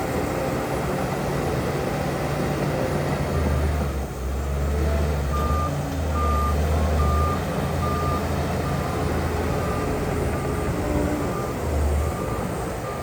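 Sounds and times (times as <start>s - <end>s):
diesel engine rumble: 0.0s - 13.0s
reversing alarm beeps: 5.3s - 10.5s, 11.2s - 13.0s.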